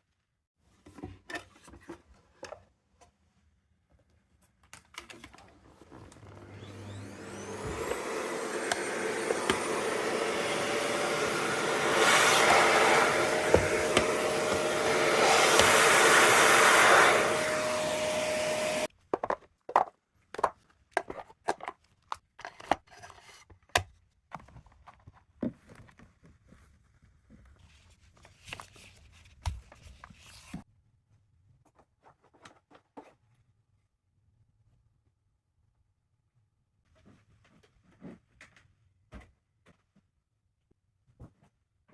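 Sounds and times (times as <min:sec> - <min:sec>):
vacuum cleaner motor whine: 0:05.8 - 0:18.9.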